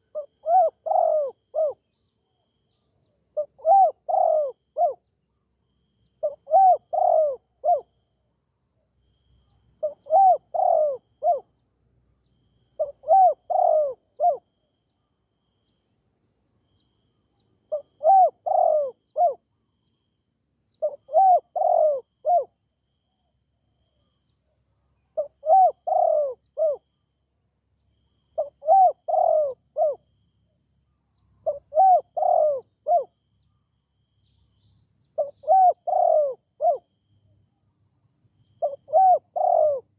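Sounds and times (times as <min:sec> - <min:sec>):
dove cooing: 0:00.0 - 0:01.8, 0:03.4 - 0:05.0, 0:06.2 - 0:07.9, 0:09.8 - 0:11.5, 0:12.8 - 0:14.4, 0:17.7 - 0:19.4, 0:20.8 - 0:22.6, 0:25.2 - 0:26.8, 0:28.4 - 0:30.0, 0:31.4 - 0:33.1, 0:35.2 - 0:36.9, 0:38.6 - 0:39.9.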